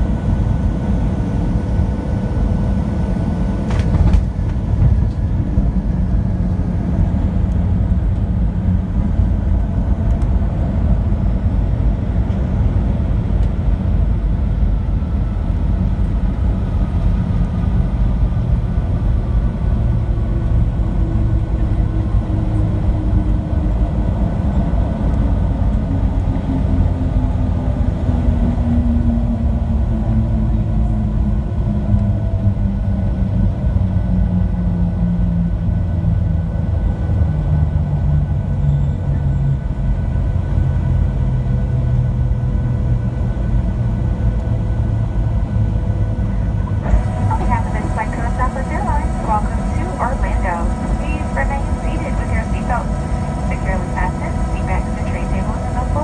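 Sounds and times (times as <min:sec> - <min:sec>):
jet engine whine: 0:00.0 - 0:31.6, 0:44.2 - 0:56.0
airliner cabin rumble: 0:02.4 - 0:10.8, 0:45.8 - 0:56.0.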